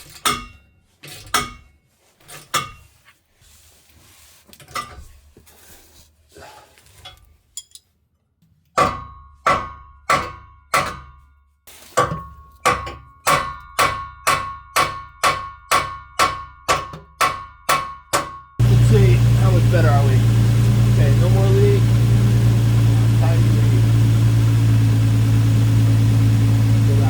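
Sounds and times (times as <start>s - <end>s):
sharp metallic knocks: 8.8s - 11.2s, 12.7s - 18.4s.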